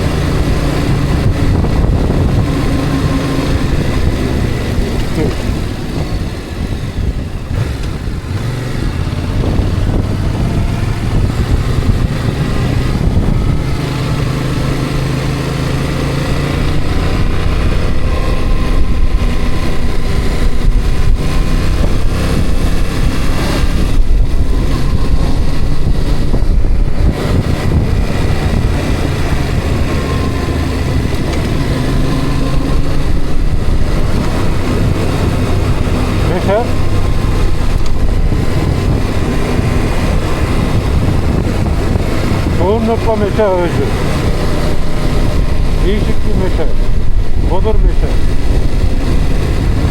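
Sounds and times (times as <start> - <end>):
vehicle engine and road rumble: 0.0 - 49.9.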